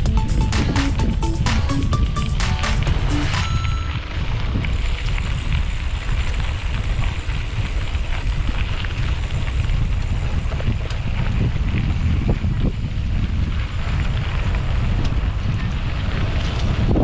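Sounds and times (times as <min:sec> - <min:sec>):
wind buffeting microphone: 0:03.9 - 0:17.0.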